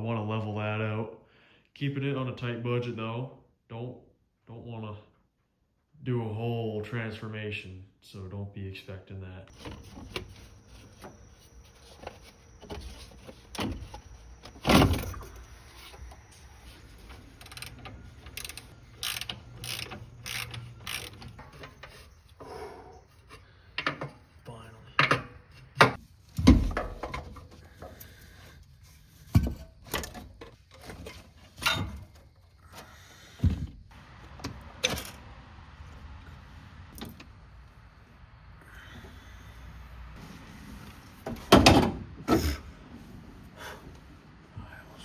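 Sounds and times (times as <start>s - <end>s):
socket ratchet clicking: 17.4s - 21.4s
metal tools knocking: 17.4s - 22.0s.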